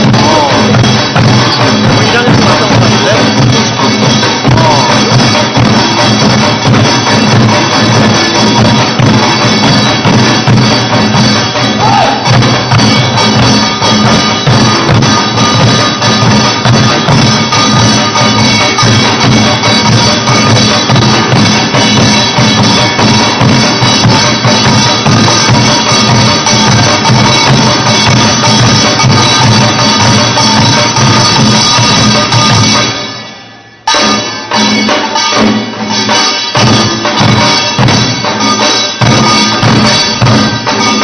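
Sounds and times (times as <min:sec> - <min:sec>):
drum ensemble beating rhythm: 0:00.0 - 0:41.0.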